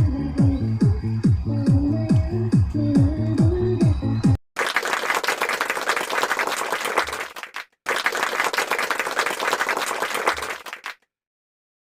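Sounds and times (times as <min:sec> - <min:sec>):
crowd applauding: 0:04.6 - 0:11.0.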